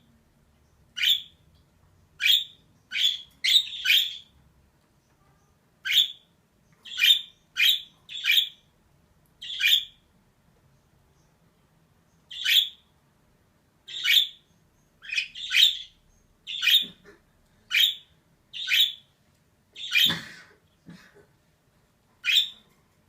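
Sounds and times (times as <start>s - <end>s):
budgerigar chirping: 0.9s - 1.4s, 2.2s - 4.3s, 5.8s - 8.6s, 9.4s - 10.0s, 12.3s - 12.8s, 13.9s - 17.1s, 17.7s - 19.1s, 19.8s - 20.2s, 22.2s - 22.6s.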